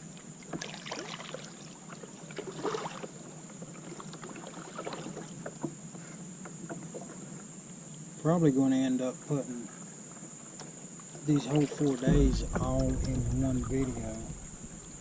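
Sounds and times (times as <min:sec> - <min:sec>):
paddle splashing in water: 0:00.4 - 0:07.4, 0:10.6 - 0:15.0.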